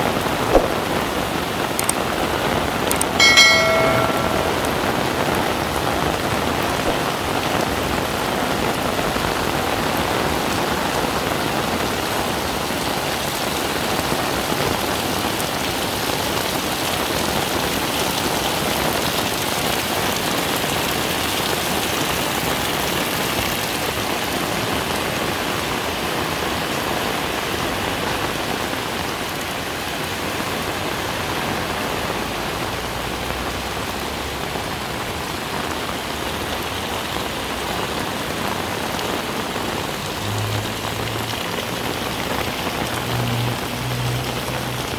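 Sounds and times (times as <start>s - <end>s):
heavy rain pouring: 0.0s - 44.9s.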